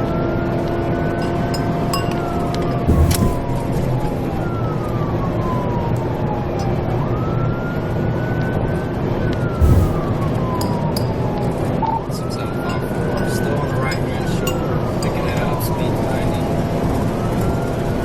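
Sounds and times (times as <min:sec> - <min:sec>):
dull low thump: 0:02.9 - 0:03.7, 0:09.6 - 0:10.6
police siren wailing: 0:04.2 - 0:08.8.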